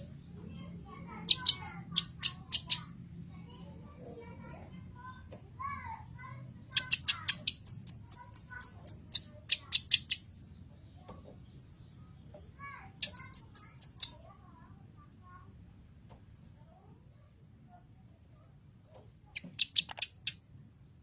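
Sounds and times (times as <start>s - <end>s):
bird singing rapid high notes: 1.1s - 2.9s, 6.7s - 10.3s, 11.8s - 14.2s.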